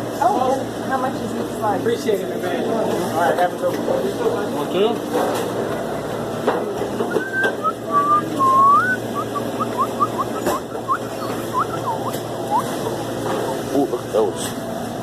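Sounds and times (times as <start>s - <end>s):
steady background hum: 0.0s - 15.0s
person whistling a tune: 7.1s - 12.7s.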